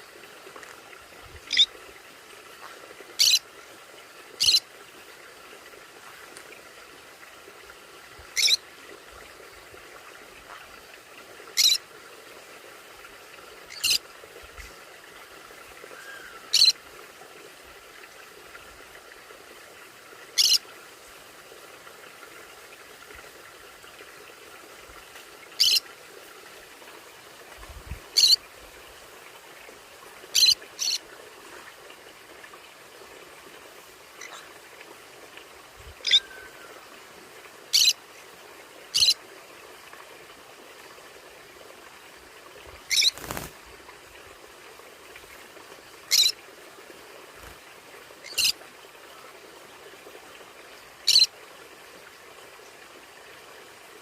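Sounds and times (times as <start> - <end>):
parrot calling: 3.2 - 3.4, 8.4 - 8.6, 11.6 - 11.8, 16.0 - 16.7, 20.4 - 20.6, 25.6 - 25.8, 36.0 - 36.5, 42.9 - 43.2.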